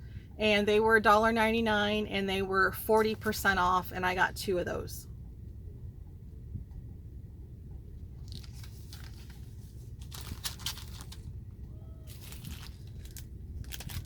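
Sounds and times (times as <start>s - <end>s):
low hum: 0.0s - 14.0s
plastic packaging crinkling: 8.2s - 11.4s, 12.0s - 14.0s.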